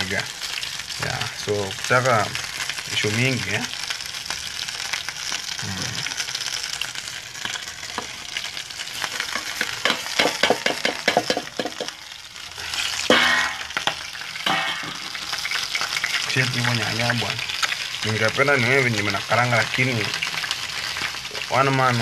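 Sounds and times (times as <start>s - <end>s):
chicken sizzling in a pot: 0.0s - 22.0s
utensil stirring in a pot: 7.4s - 12.0s.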